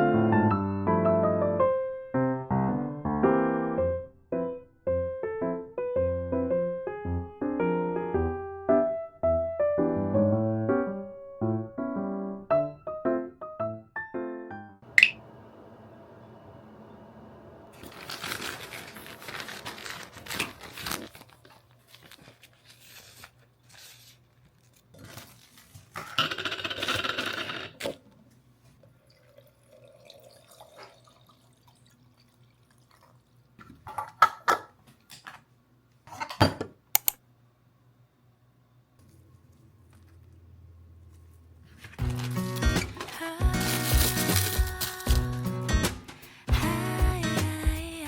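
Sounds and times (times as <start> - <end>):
water running: 28.8 - 33.7.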